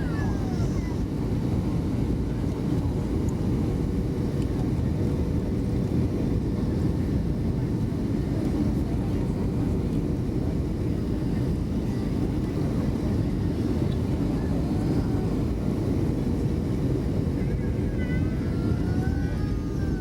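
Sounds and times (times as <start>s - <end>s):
aircraft engines rumbling in cabin: 0.0s - 20.0s.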